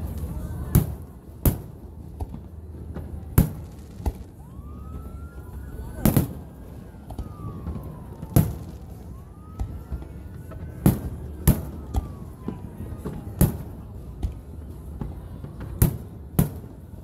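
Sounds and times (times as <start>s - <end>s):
siren wailing: 4.3s - 13.4s.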